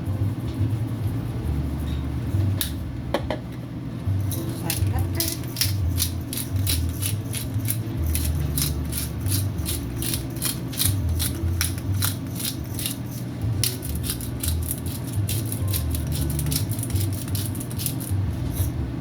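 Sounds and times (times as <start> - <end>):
low background music: 0.0 - 19.0
spice shaker rattling: 4.2 - 18.7.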